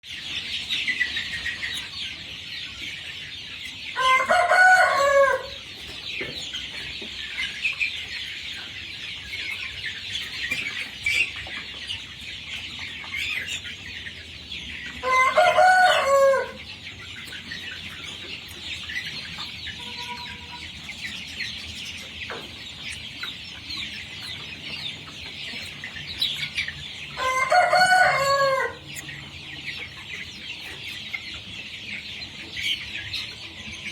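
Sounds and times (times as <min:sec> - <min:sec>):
chickens chattering: 0:00.0 - 0:33.9
rooster crowing: 0:04.0 - 0:05.6, 0:15.0 - 0:16.6, 0:27.2 - 0:28.8.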